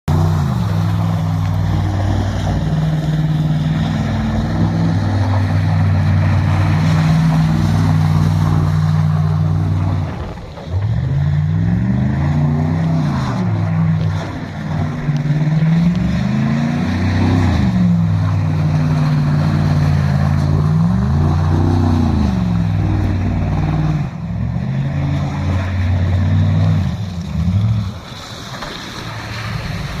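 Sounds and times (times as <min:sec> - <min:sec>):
loud car engine revving: 0:00.0 - 0:28.0.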